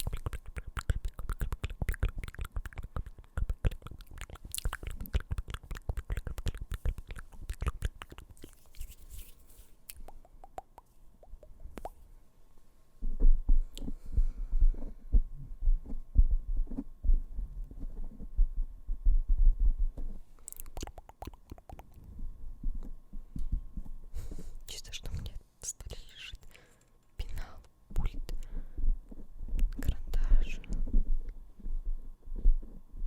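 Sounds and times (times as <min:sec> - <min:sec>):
fingertips tapping on a microphone: 0:00.0 - 0:12.0, 0:13.0 - 0:24.0.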